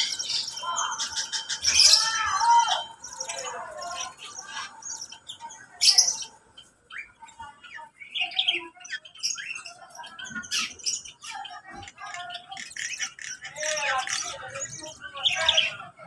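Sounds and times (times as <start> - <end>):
loud shrill squawk: 0.0 - 5.2
cage birds chirping and squawking: 0.0 - 16.0.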